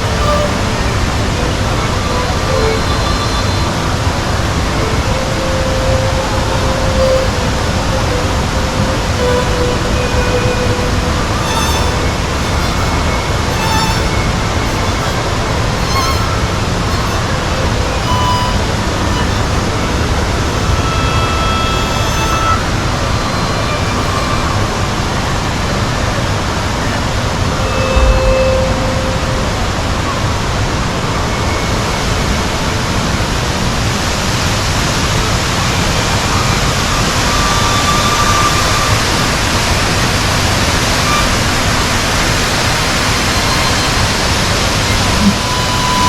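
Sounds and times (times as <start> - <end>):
loud rushing noise: 22.6 - 31.2
faint short tones: 27.6 - 29.8
low thump: 28.0 - 29.4.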